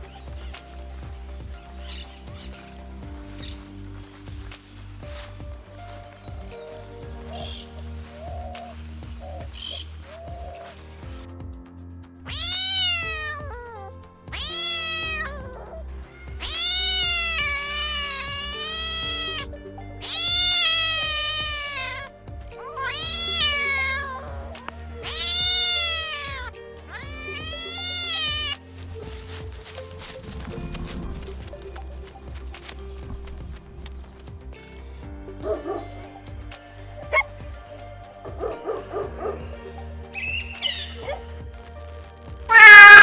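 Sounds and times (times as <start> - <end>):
background music: 0.0 - 43.0
cat meowing: 12.3 - 15.8, 16.4 - 19.4, 20.0 - 29.1, 42.5 - 43.0.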